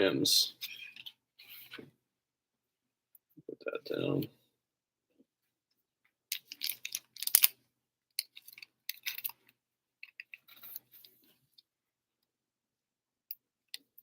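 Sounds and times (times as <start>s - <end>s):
trading cards rustling and clicking: 6.3s - 7.5s.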